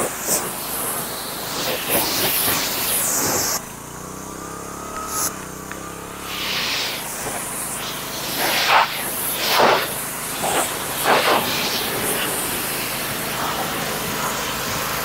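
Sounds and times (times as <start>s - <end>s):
pressure washer spraying water: 0.0s - 15.0s
washer engine running: 0.0s - 15.0s.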